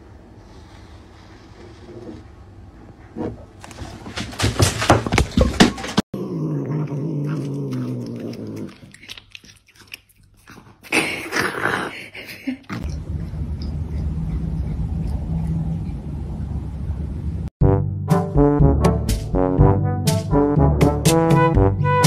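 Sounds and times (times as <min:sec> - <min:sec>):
cat growling: 0:05.9 - 0:16.5
cat chewing and snapping: 0:06.6 - 0:11.3, 0:12.6 - 0:16.6.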